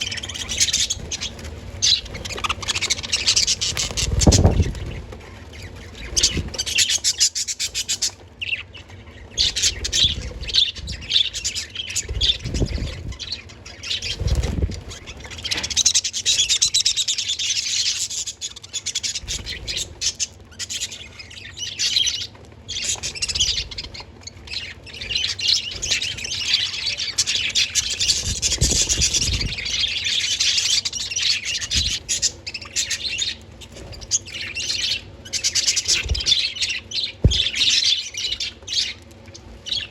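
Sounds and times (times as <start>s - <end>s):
budgerigars chirping and warbling: 0.0s - 39.9s
low thuds: 37.2s - 37.6s.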